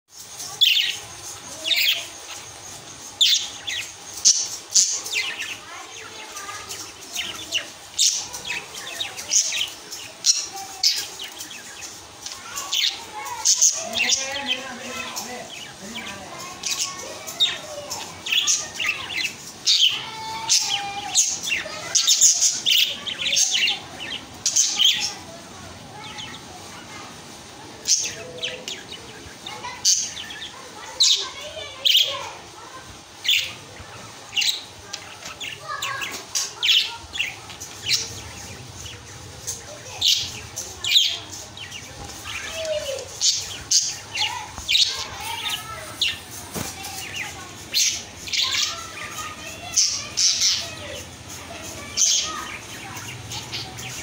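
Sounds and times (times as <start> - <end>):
bird chirping: 0.1 - 27.1, 27.8 - 54.0.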